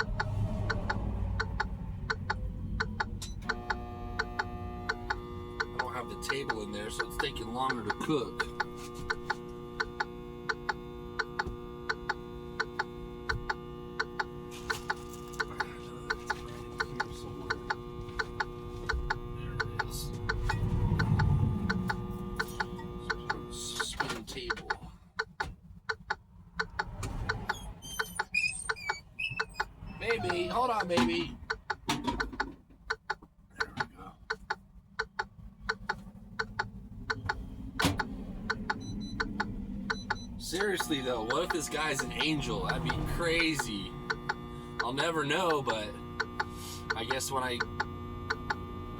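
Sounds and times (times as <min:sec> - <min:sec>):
low rumble: 0:00.0 - 0:03.5, 0:19.0 - 0:23.1, 0:35.4 - 0:44.5
sharp double clicks: 0:00.0 - 0:14.3, 0:18.4 - 0:27.6, 0:31.4 - 0:48.6
steady hum: 0:00.0 - 0:24.9, 0:33.6 - 0:48.9.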